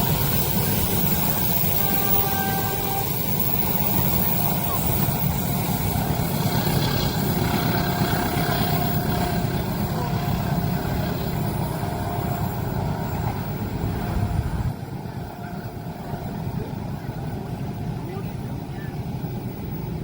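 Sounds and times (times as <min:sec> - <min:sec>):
heavy traffic rumbling: 0:00.0 - 0:20.0.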